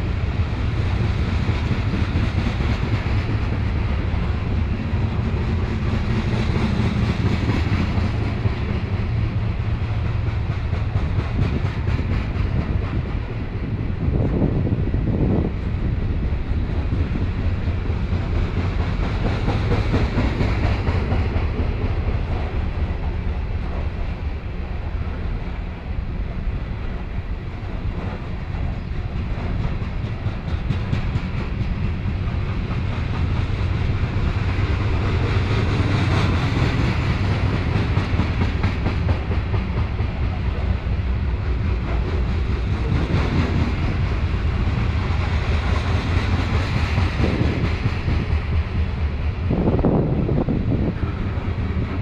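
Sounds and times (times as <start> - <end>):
freight train wheels rumbling on rails: 0.0 - 52.0.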